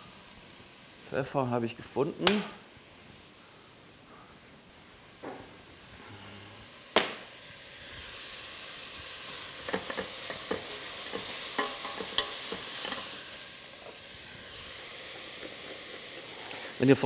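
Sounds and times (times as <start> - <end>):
vegetables sizzling in pot: 5.0 - 17.0.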